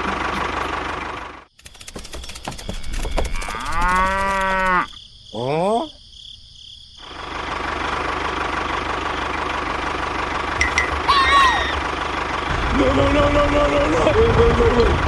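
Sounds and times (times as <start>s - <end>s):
steady engine hum: 0.0s - 4.7s, 6.9s - 15.0s
small engine knocking: 0.0s - 4.8s, 7.3s - 15.0s
cow mooing: 3.4s - 5.0s.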